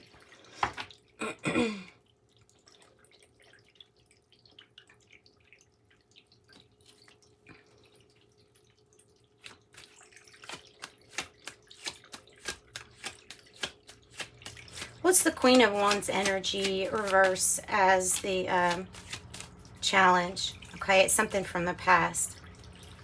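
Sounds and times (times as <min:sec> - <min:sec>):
cards clicking and tapping: 0:10.5 - 0:17.4.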